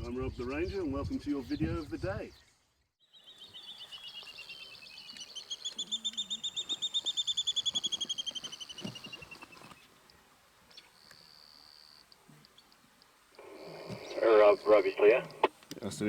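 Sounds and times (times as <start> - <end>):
bird trilling: 3.1 - 9.7.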